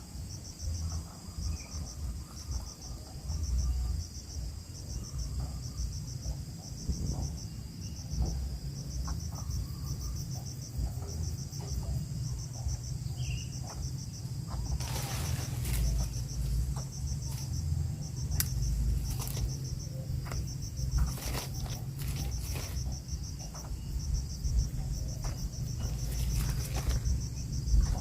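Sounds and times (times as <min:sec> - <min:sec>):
cricket chirping: 0:00.0 - 0:28.0
rustles and clicks: 0:14.5 - 0:17.6, 0:18.2 - 0:23.8, 0:24.8 - 0:28.0.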